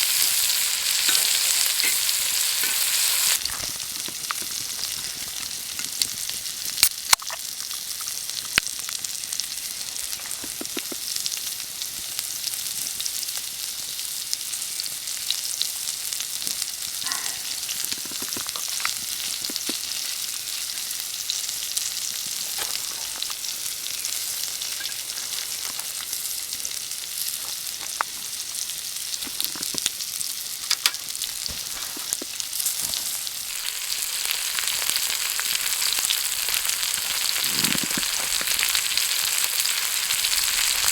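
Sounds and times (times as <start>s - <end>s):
meat sizzling over fire: 0.0s - 40.9s
fat popping: 3.4s - 8.7s, 10.2s - 11.1s, 17.0s - 20.2s, 29.2s - 30.0s, 30.7s - 32.8s, 33.5s - 39.5s.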